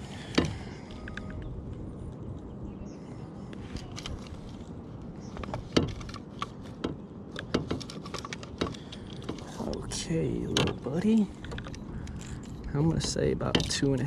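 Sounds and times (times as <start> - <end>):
fishing gear clicking and rattling: 3.7 - 14.0.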